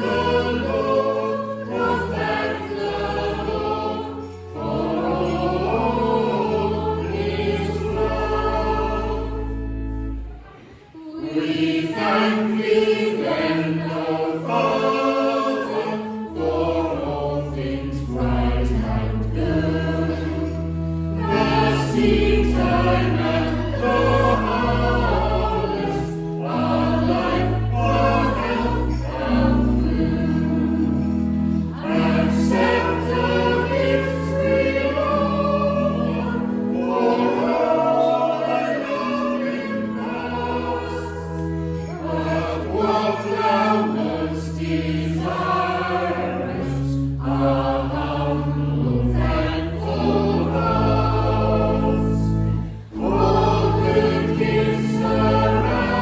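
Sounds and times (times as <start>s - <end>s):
choir and congregation singing hymn: 0.0s - 56.0s
church organ low notes: 0.0s - 56.0s.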